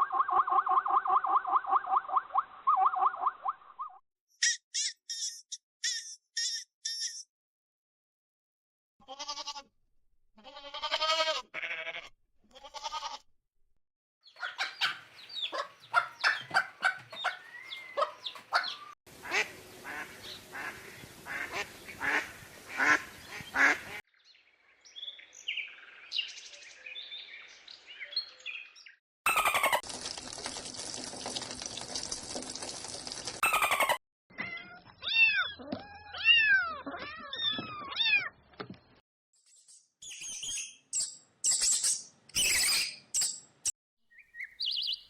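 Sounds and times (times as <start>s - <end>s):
small birds chirping: 14.2s - 19.0s, 38.8s - 45.0s
poultry clucking: 14.3s - 24.0s.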